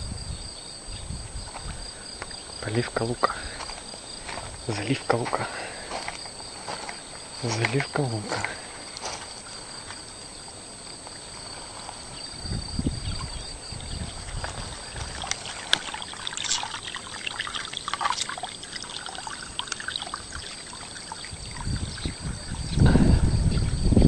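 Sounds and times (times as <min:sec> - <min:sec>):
low rumbling bumps: 0:08.2 - 0:16.0, 0:21.2 - 0:24.0
water pouring onto plants: 0:14.2 - 0:22.7.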